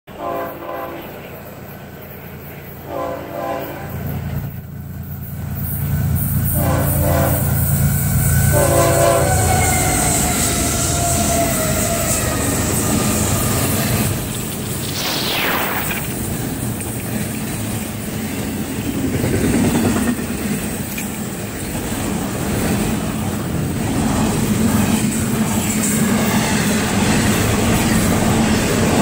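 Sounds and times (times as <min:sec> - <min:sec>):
train horn blasts: 0:00.1 - 0:01.2, 0:02.8 - 0:04.1, 0:06.4 - 0:13.3
train wheels on rail: 0:00.1 - 0:15.2, 0:15.8 - 0:29.0
falling whine: 0:13.1 - 0:16.8.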